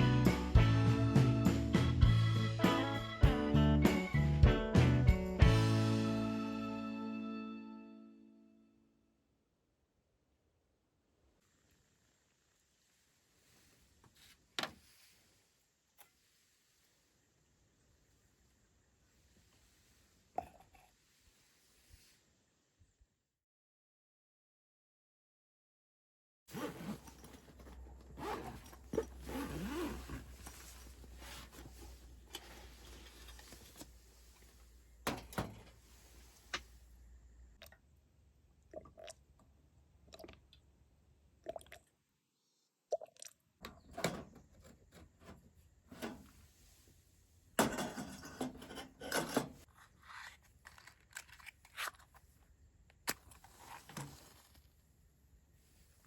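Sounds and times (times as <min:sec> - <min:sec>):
crunching and scraping handling: 0:47.8 - 0:55.0.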